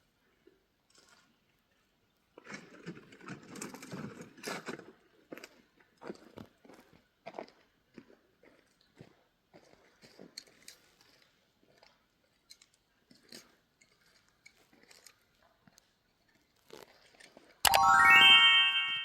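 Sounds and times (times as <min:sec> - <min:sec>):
ringing chime-like music sting: 0:17.7 - 0:19.0.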